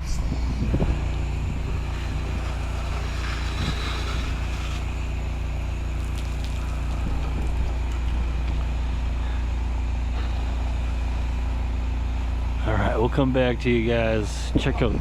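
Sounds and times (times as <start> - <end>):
small engine running: 0.0 - 14.7
wind: 0.0 - 15.0
spray hissing: 1.5 - 7.8.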